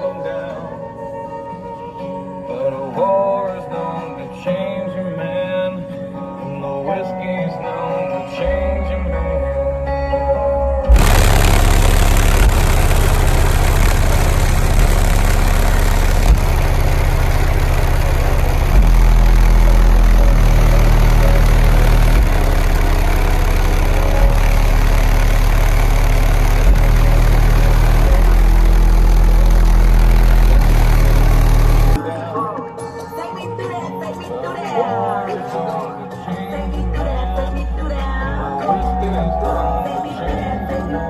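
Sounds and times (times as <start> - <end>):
subwoofers playing deep bass: 8.5 - 32.0.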